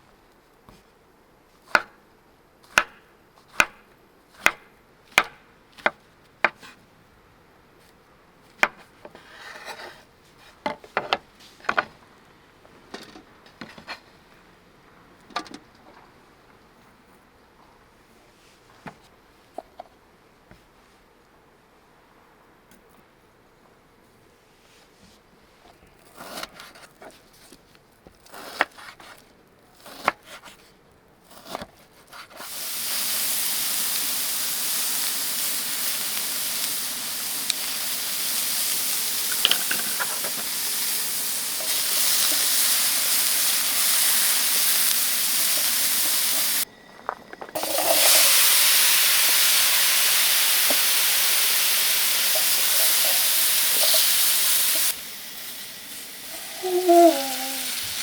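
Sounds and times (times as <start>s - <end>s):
loud steady hiss: 32.4s - 58.0s.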